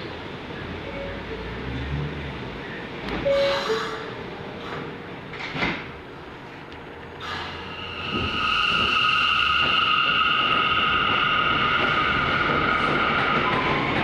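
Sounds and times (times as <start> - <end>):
train pulling out with high whine: 0.0 - 5.5, 6.1 - 14.0
train doors shutting with a knock: 3.1 - 6.0
two-tone door chime: 3.3 - 4.1.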